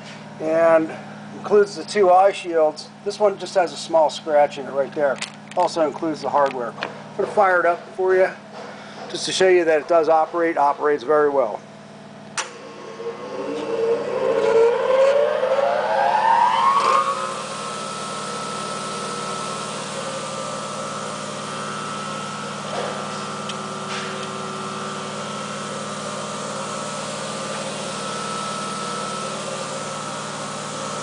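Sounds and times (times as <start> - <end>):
bench grinder motor whining: 12.4 - 31.0.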